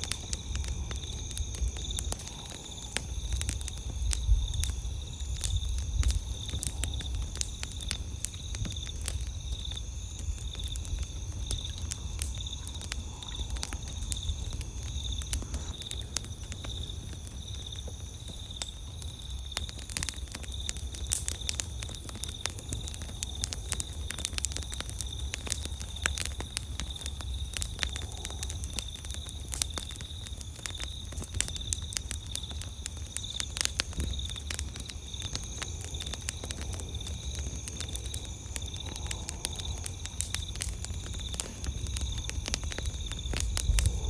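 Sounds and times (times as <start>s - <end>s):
campfire crackling and popping: 0.0s - 44.0s
night insects trilling: 0.0s - 44.0s
low rumble: 43.4s - 44.0s.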